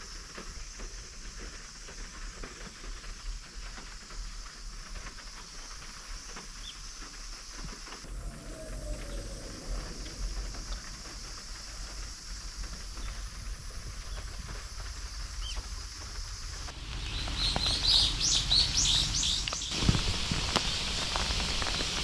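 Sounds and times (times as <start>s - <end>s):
background hiss and hum: 0.0s - 22.0s
bird chirping: 17.0s - 19.8s.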